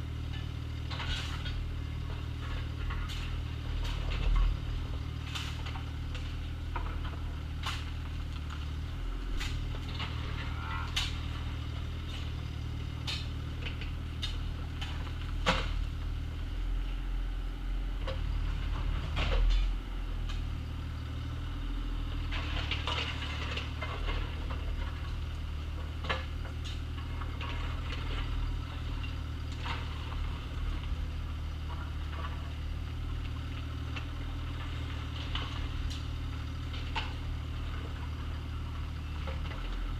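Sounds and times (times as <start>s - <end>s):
excavator diesel engine running: 0.0s - 39.9s
bucket scraping gravel: 2.8s - 5.8s.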